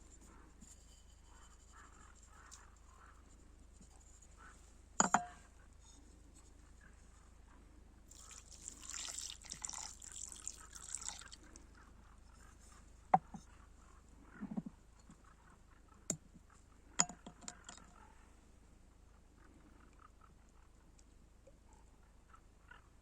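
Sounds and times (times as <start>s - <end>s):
liquid pouring with crackly hiss: 8.1s - 11.7s.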